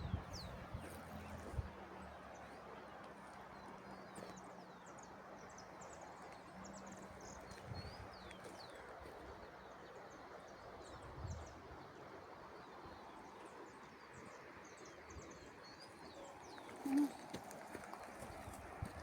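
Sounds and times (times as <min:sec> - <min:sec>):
small birds chirping: 0:02.3 - 0:19.0.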